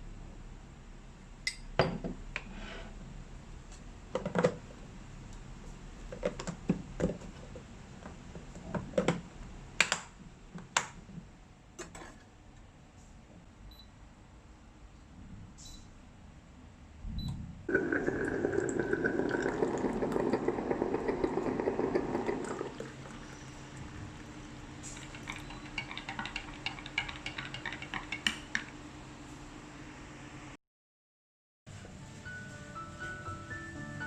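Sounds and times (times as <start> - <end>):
water running: 17.7 - 28.2.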